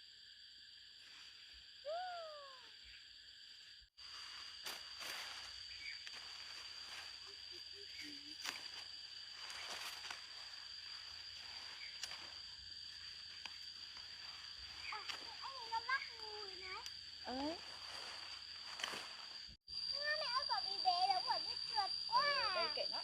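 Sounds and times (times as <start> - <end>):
high-pitched insect drone: 0.0 - 23.0.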